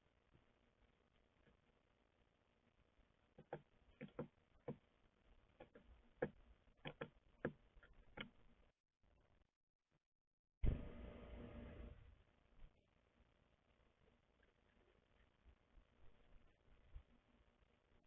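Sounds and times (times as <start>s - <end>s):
birds tapping on bird feeder: 3.4s - 4.8s, 5.6s - 8.3s.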